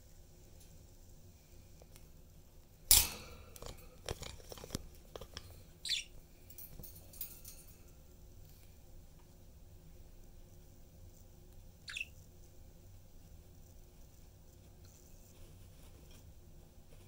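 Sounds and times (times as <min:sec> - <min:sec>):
budgie chirp: 0:05.8 - 0:06.1, 0:11.8 - 0:12.2.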